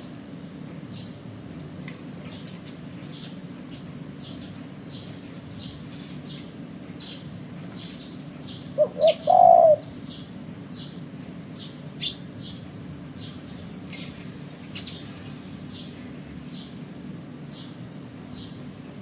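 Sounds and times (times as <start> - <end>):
small bird chirping: 11.6 - 12.6.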